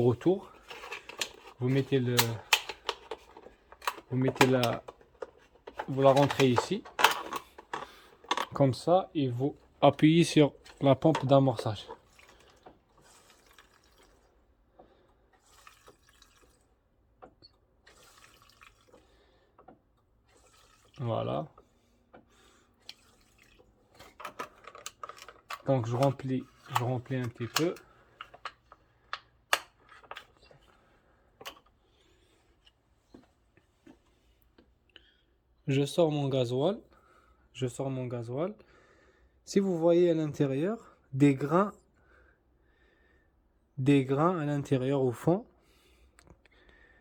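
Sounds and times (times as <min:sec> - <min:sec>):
fuel dripping into plastic bottle: 0:10.6 - 0:29.3.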